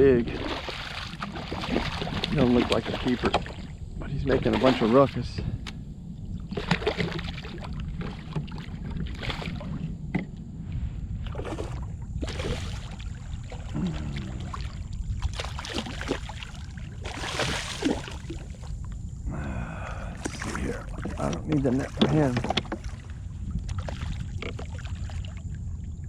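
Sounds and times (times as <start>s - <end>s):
wind rumble on microphone: 0.0s - 26.0s
fish splashing at water surface: 0.3s - 3.7s, 11.3s - 18.7s, 20.1s - 23.1s.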